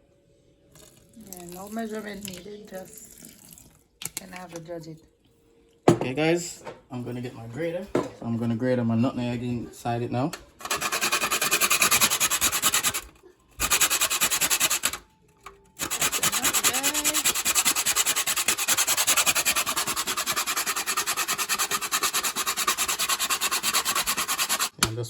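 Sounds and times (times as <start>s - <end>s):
nutmeg rasping on grater: 10.6s - 13.0s, 13.6s - 15.0s, 15.8s - 24.8s.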